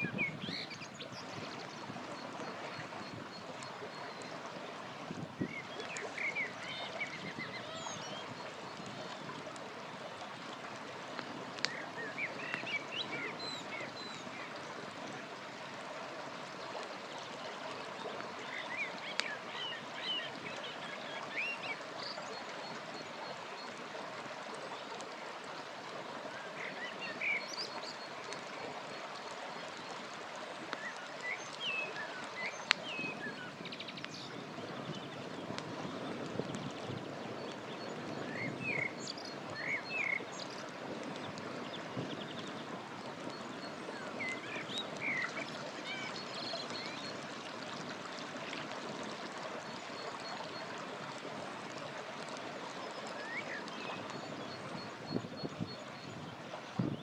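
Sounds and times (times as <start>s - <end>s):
river rushing: 38.2s - 41.9s, 42.6s - 54.0s.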